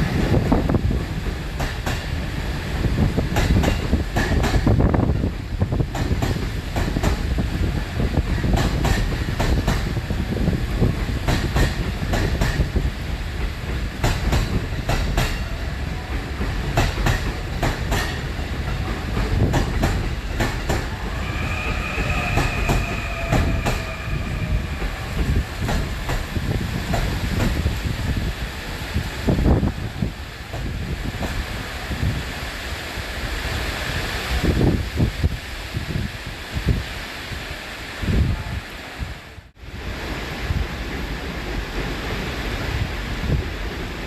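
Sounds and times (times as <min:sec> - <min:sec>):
train rumble: 0:00.0 - 0:44.0
train wheels clacking over rail joints: 0:00.3 - 0:27.9.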